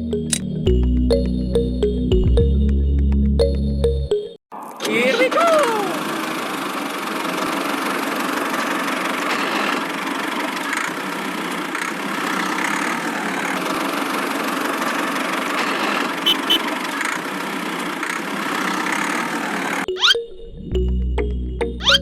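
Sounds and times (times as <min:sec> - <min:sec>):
small tractor motor running: 0:05.8 - 0:19.9.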